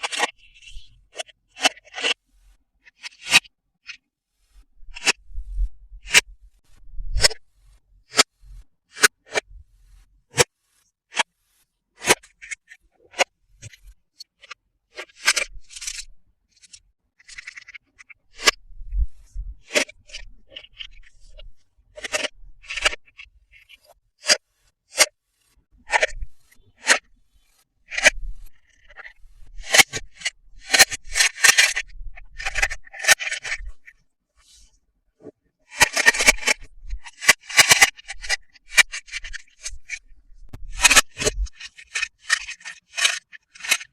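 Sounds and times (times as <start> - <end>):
packaging clicks and snips: 35.7 - 43.9.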